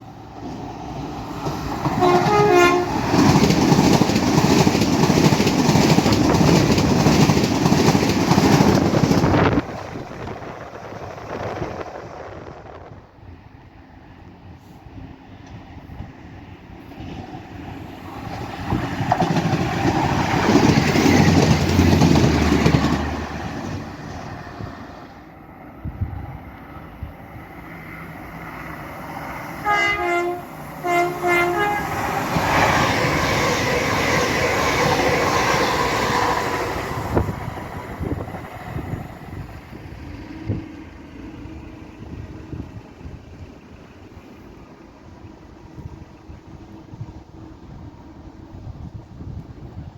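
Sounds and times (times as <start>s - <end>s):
train rushing past: 0.0s - 49.9s
two-note train horn blasts: 2.0s - 3.0s, 29.6s - 32.0s.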